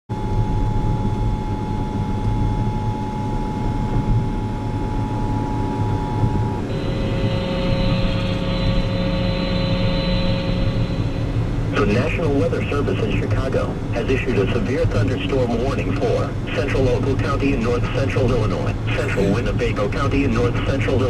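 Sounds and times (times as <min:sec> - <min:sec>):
faint steady tones: 0:00.1 - 0:21.0
vehicle engine drone: 0:00.1 - 0:21.0.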